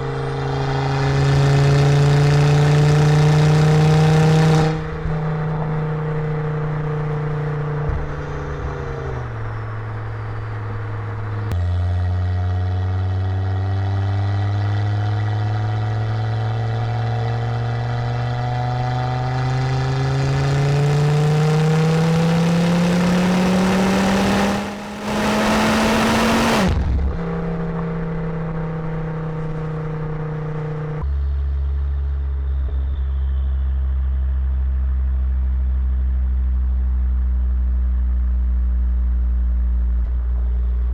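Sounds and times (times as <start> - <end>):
car engine revving: 0.0 - 31.1.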